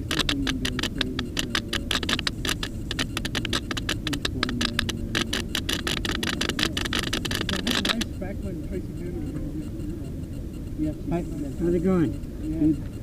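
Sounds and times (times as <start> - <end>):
dense irregular crackle: 0.0 - 8.1.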